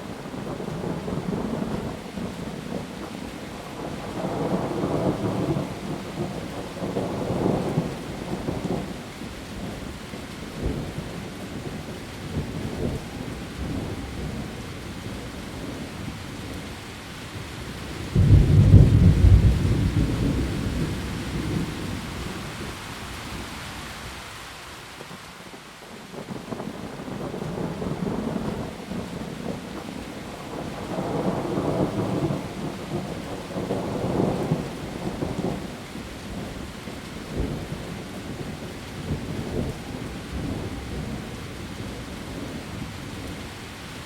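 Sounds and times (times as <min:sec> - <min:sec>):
heavy rain on leaves: 0:00.0 - 0:44.0
thunder rumbling: 0:17.7 - 0:23.5, 0:26.2 - 0:43.4
loud thunder clap: 0:18.2 - 0:21.6.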